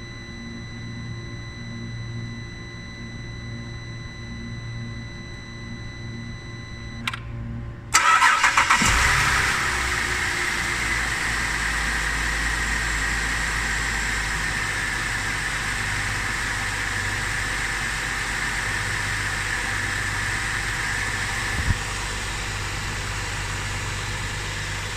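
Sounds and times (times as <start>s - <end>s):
high whine: 0.0s - 24.9s
click: 6.9s - 7.3s
car engine cranking and idling: 7.0s - 24.9s.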